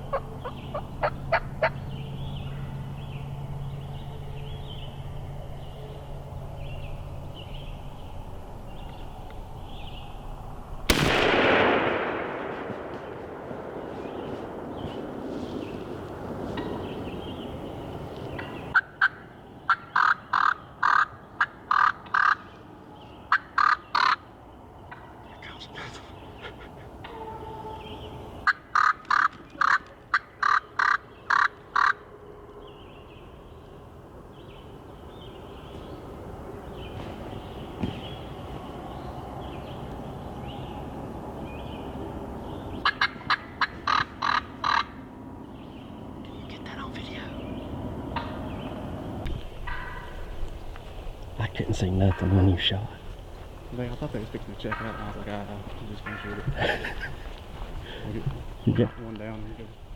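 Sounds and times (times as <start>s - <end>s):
turkey calling: 0.0s - 1.8s, 18.2s - 22.5s, 23.3s - 24.3s, 24.9s - 32.0s, 42.8s - 45.0s, 54.6s - 59.0s
steady noise: 0.0s - 18.8s.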